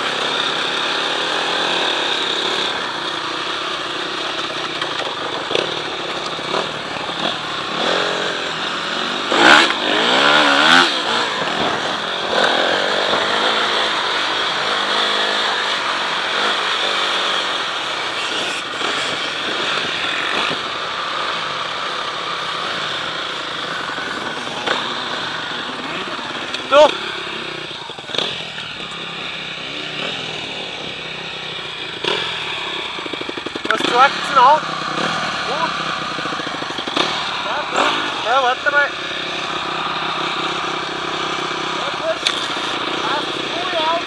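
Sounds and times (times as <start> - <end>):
motocross bike engine revving: 0.0 - 44.0.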